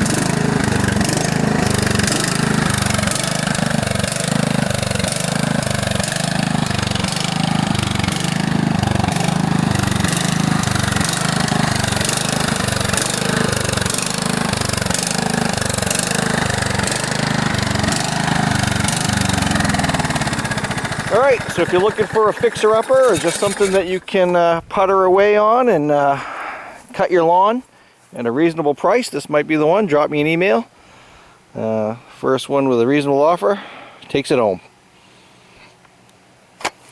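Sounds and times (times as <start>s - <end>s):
loud mower engine idling: 0.0s - 24.3s.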